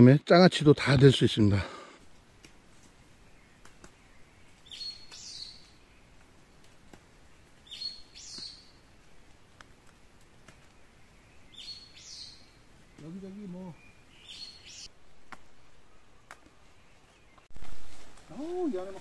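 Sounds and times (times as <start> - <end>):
songbird singing: 0.5 - 19.0.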